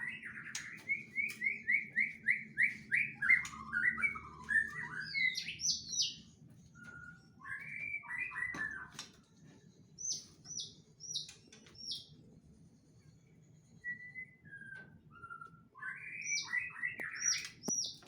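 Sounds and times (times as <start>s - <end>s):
bird singing whistled phrases: 0.0s - 6.2s, 6.8s - 9.0s, 13.8s - 18.0s.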